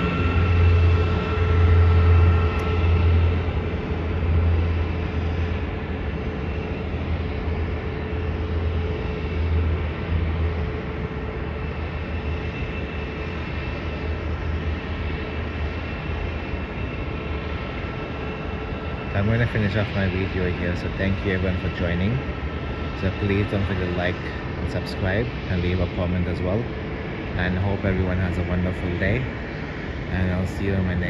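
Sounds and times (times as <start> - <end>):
aircraft engines droning: 0.0 - 31.0.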